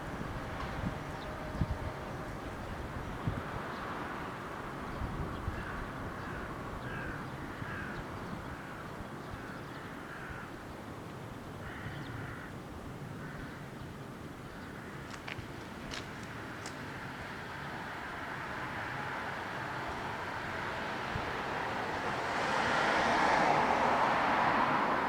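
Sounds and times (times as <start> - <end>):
outdoor background noise: 0.0 - 25.0
crow cawing: 5.6 - 8.8, 9.4 - 10.6, 11.6 - 12.6, 13.2 - 13.7, 14.6 - 15.2.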